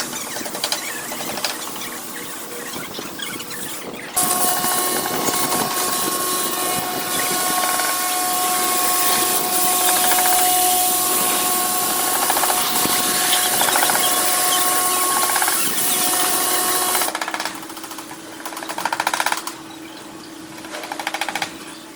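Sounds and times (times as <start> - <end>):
two-note motor whine: 0.0 - 17.1
car wash loud steady hiss: 4.2 - 17.1.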